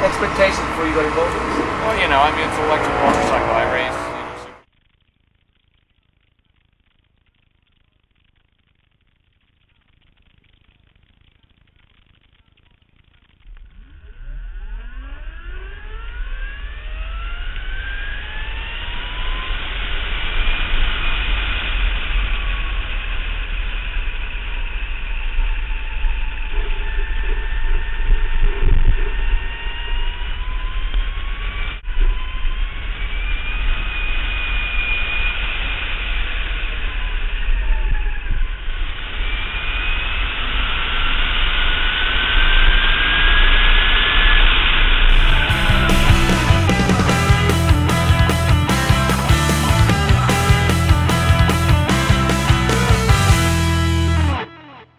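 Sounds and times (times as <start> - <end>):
electric motorcycle motor whine: 0.0 - 4.6, 13.6 - 54.3
wind and road noise: 0.0 - 4.6.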